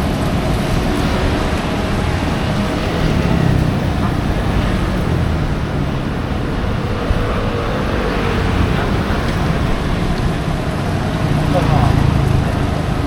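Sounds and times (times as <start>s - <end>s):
traffic noise: 0.0s - 13.0s
people chattering: 1.0s - 13.0s.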